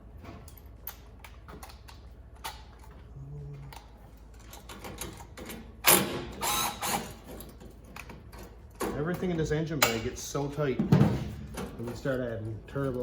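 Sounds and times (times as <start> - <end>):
small clicks and knocks of tools: 0.2 - 6.1, 6.7 - 10.1.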